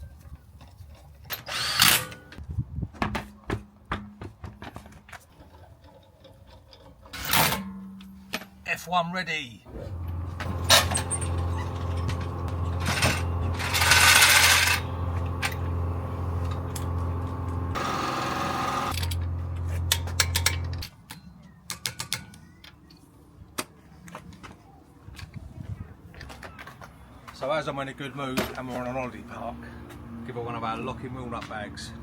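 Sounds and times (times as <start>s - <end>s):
motor hum: 9.7s - 20.8s
impact wrench rattling: 9.9s - 20.8s.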